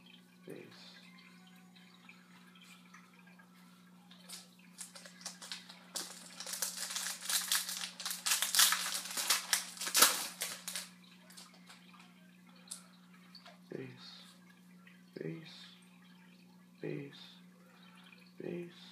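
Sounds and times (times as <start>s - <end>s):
low electrical hum: 0.0s - 18.9s
foil wrapper crinkling and tearing: 4.3s - 11.7s.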